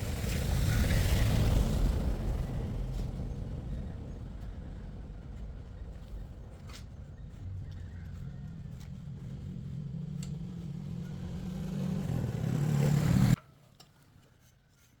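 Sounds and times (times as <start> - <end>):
motor humming: 6.4 - 13.4.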